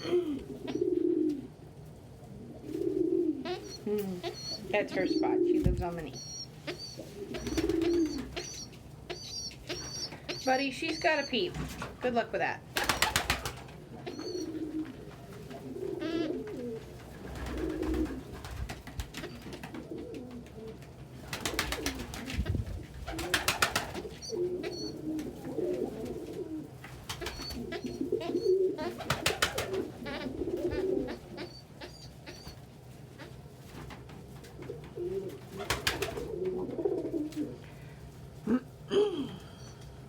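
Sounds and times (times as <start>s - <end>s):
pigeons cooing: 0.0s - 11.6s, 12.7s - 33.9s, 34.6s - 37.6s
high chirps: 6.1s - 11.5s.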